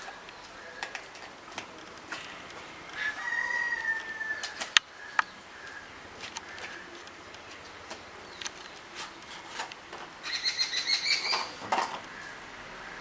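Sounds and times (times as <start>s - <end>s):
rooster crowing: 2.6s - 7.0s.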